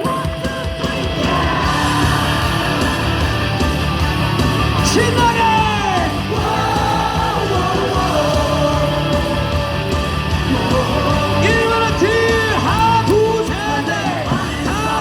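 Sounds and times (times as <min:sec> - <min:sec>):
crowd singing and yelling: 0:00.0 - 0:15.0
rock cheering music over loudspeakers: 0:00.0 - 0:15.0
amplified voice shouting: 0:04.8 - 0:09.1, 0:10.5 - 0:15.0.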